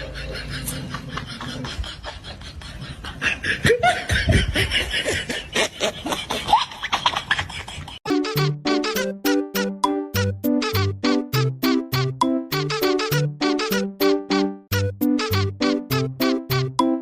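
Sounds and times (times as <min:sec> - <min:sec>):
person laughing in bursts: 0:00.0 - 0:08.1.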